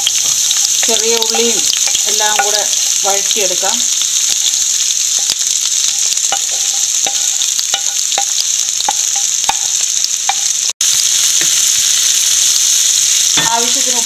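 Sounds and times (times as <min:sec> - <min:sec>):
food sizzling in hot oil: 0:00.0 - 0:14.0
wooden spatula tapping pan: 0:01.2 - 0:02.8, 0:06.2 - 0:10.5.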